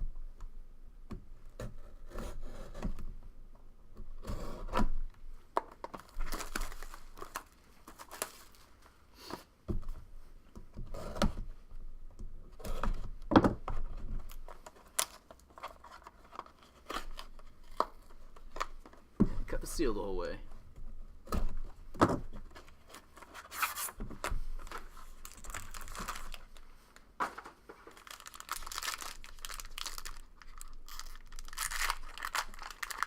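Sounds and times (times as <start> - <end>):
plastic wrap crinkling and tearing: 5.9 - 8.8, 14.2 - 18.8, 22.8 - 27.1, 27.7 - 33.0
cardboard scraping: 21.4 - 26.6.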